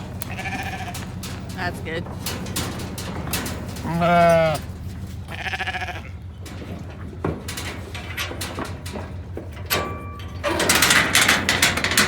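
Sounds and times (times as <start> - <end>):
knocks and clicks: 0.0 - 5.0, 6.4 - 12.0
sheep bleating: 0.1 - 1.2, 3.8 - 4.6, 5.2 - 6.3.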